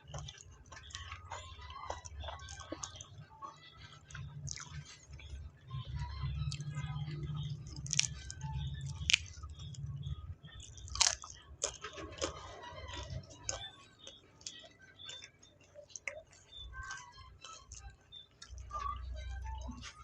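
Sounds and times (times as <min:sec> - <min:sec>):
close-up chewing and biting: 0:00.0 - 0:20.0.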